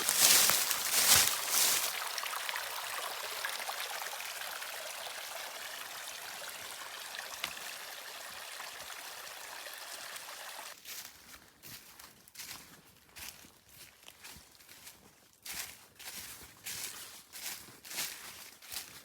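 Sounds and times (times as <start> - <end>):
creek water running: 0.0 - 10.8.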